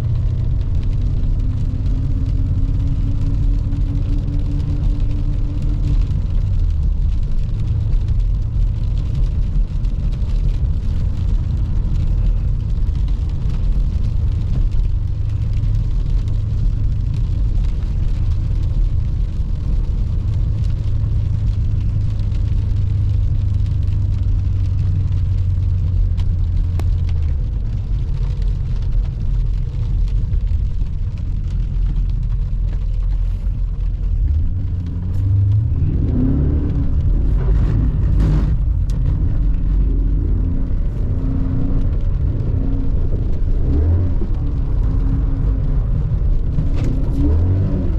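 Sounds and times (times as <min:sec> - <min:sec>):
car engine cruising: 0:00.0 - 0:47.9.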